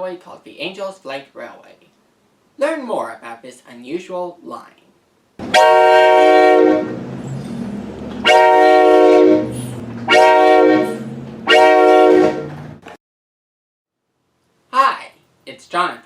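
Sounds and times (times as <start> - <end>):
train horn blasts: 5.4 - 7.2, 8.2 - 12.6
low hum: 5.4 - 11.5.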